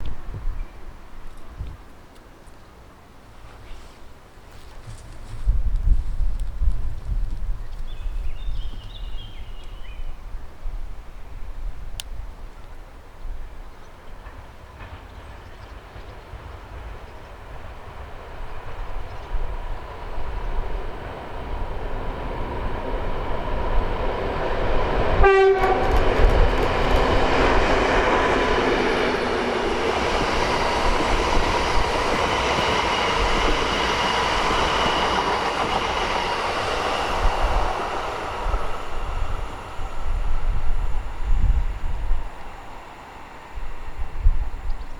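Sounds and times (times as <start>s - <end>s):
locomotive engine rumble: 19.4s - 42.6s
train horn blast: 25.2s - 26.3s
wheels clattering over rails: 25.6s - 36.6s.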